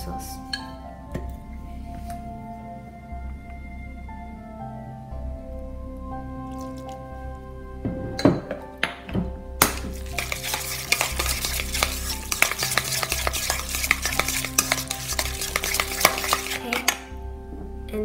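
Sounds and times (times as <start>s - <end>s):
chopsticks scraping metal bowl: 9.6s - 17.1s.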